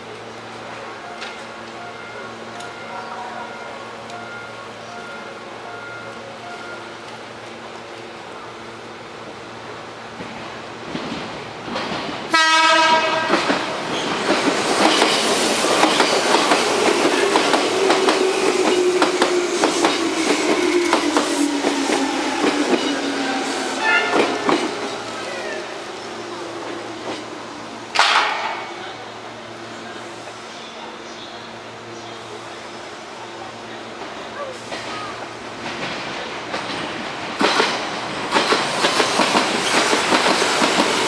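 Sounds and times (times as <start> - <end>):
train horn blast: 12.3 - 13.5, 23.8 - 24.4.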